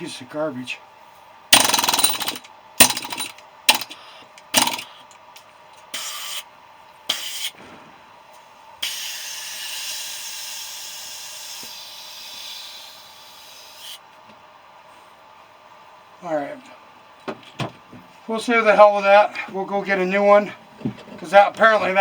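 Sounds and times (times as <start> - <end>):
air tool bursts: 1.6 - 4.9, 5.9 - 6.4, 8.8 - 12.9.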